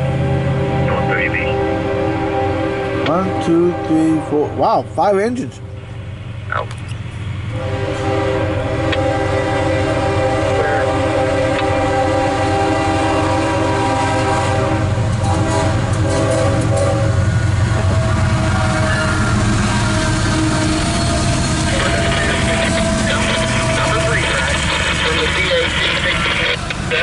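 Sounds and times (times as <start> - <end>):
locomotive engines rumbling: 0.0 - 27.0
train air horn chord: 0.1 - 4.6, 7.5 - 24.2.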